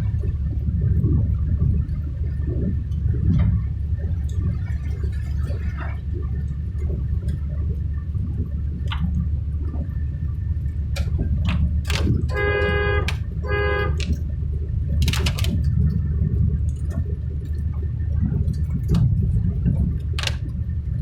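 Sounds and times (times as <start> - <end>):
sharp clicks: 11.9 - 12.4, 13.0 - 13.3, 14.0 - 14.2, 15.0 - 15.7, 20.2 - 20.5.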